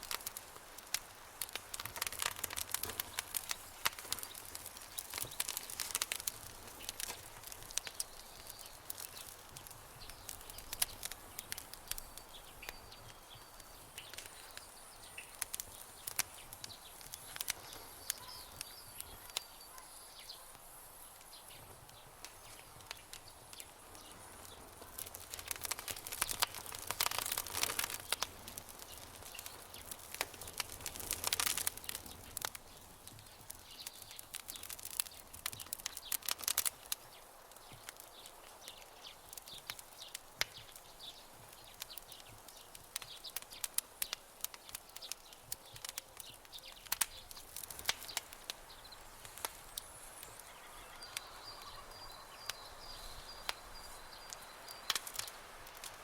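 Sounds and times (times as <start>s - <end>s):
campfire crackling and popping: 0.0s - 56.0s
faint high chirping: 16.7s - 20.6s, 49.6s - 55.2s.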